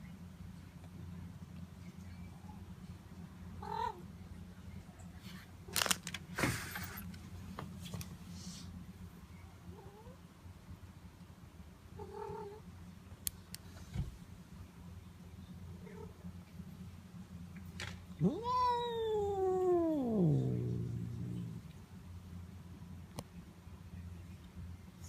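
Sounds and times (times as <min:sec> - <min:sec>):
cat purring: 0:18.1 - 0:22.0
cat meowing: 0:18.2 - 0:21.7.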